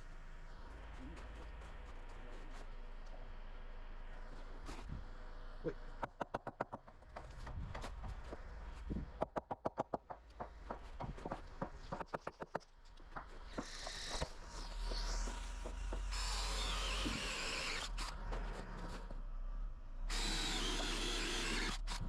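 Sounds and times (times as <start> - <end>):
harsh high-pitched tool noise: 13.6 - 18.1.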